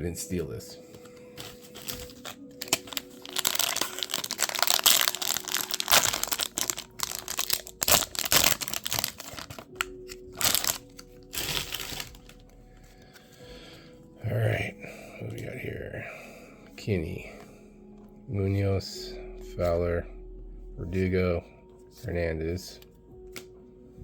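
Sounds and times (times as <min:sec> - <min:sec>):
foil wrapper tearing and crinkling: 0:01.4 - 0:12.5.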